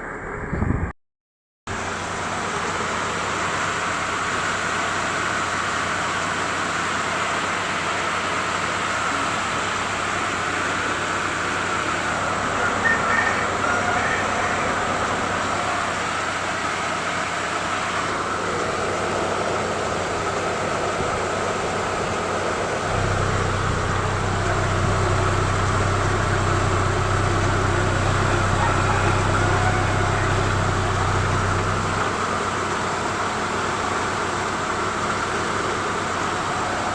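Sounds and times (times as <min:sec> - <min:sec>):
car engine idling: 0:01.7 - 0:36.9
deep steady hum: 0:09.4 - 0:36.9.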